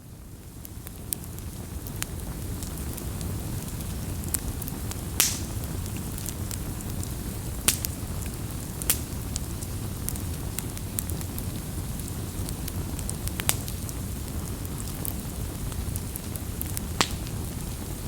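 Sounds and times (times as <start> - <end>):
bonfire rushing: 0.7 - 18.0
wood popping and snapping: 5.2 - 5.6, 17.0 - 17.3.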